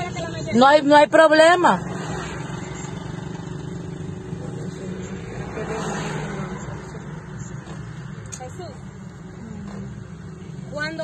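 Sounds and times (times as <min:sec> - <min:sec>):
traffic noise: 0:00.0 - 0:11.0
car engine idling: 0:02.4 - 0:11.0.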